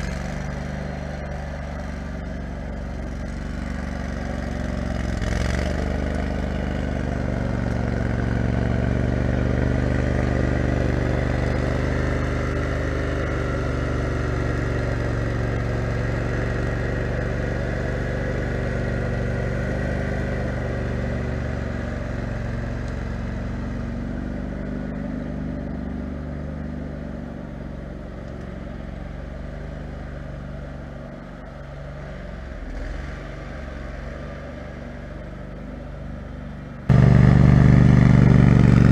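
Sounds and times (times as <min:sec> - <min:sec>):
lawn mower engine running: 0:00.0 - 0:32.7, 0:34.8 - 0:38.9.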